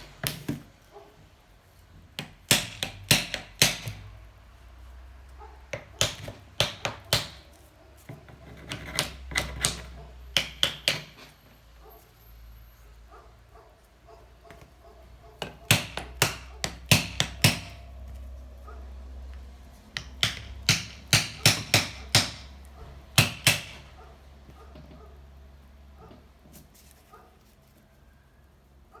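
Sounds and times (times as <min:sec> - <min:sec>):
hammer tapping on metal: 0:08.7 - 0:11.3, 0:15.4 - 0:17.9, 0:19.9 - 0:23.9.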